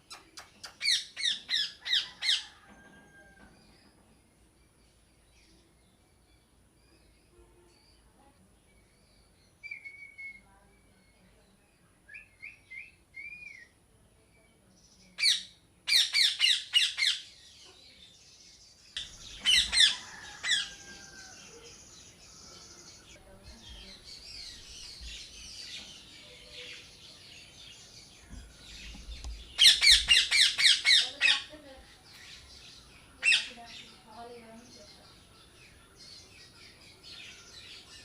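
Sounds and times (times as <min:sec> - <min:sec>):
parrots chattering softly: 0:00.0 - 0:02.6, 0:15.2 - 0:17.8, 0:19.1 - 0:26.9, 0:28.8 - 0:32.5, 0:33.2 - 0:34.0
parrots squawking: 0:15.2 - 0:17.2, 0:19.3 - 0:20.9, 0:29.6 - 0:31.5, 0:33.2 - 0:33.6.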